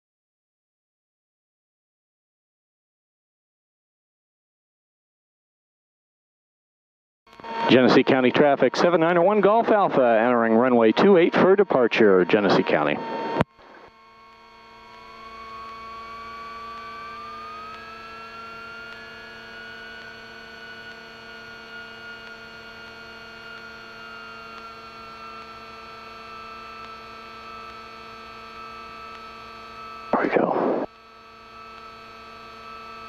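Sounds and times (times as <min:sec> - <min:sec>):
engine whine: 0:07.3 - 0:25.3, 0:28.6 - 0:33.0.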